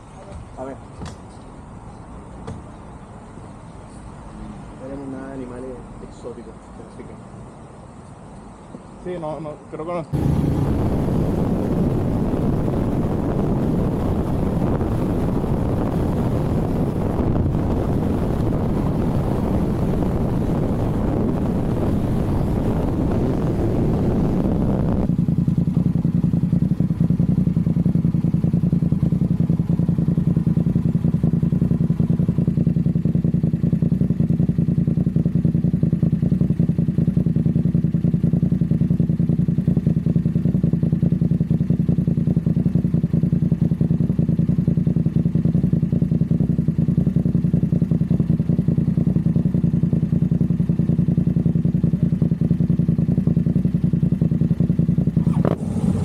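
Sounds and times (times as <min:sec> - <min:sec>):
vehicle drone: 0:10.0 - 0:35.2, 0:53.4 - 0:56.0
faint thin whine: 0:10.1 - 0:25.1.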